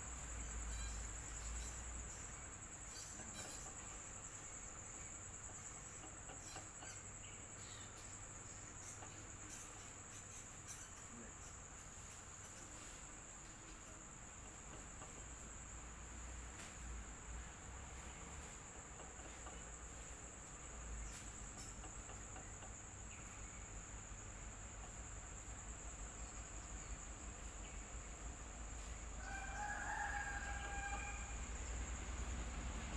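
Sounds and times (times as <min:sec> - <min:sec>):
electric fan running: 0:27.1 - 0:32.9.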